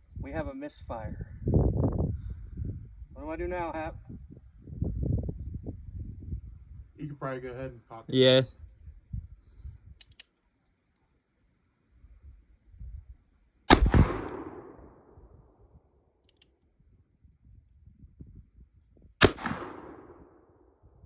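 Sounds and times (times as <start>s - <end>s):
revolver shots with echo: 13.7s - 14.8s, 19.2s - 20.1s.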